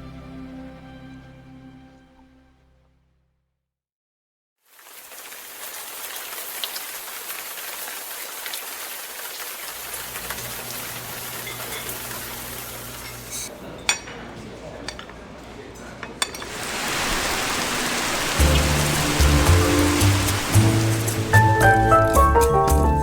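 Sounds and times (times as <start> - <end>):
steady rain falling: 4.7 - 13.3, 16.5 - 23.0.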